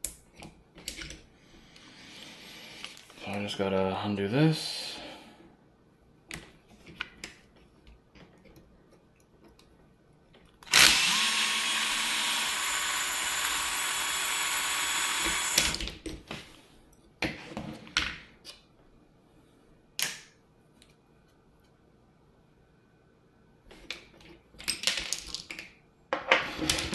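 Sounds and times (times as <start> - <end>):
electric drill running: 10.7 - 15.8
small parts clicking and knocking: 23.7 - 26.9.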